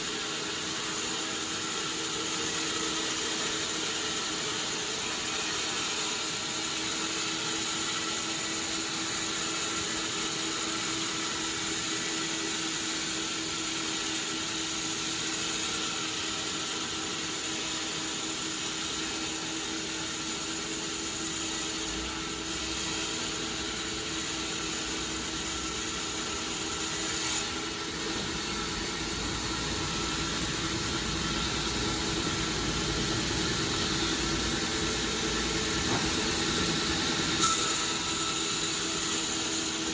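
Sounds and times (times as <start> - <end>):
high machine whine: 0.0 - 39.9
sawmill machinery humming: 0.0 - 39.9.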